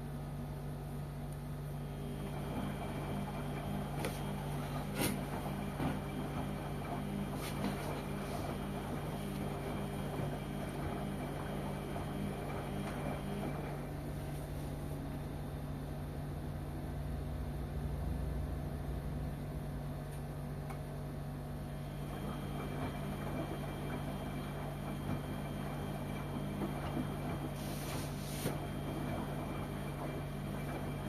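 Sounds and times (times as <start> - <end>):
washing machine hum: 0.0 - 31.0.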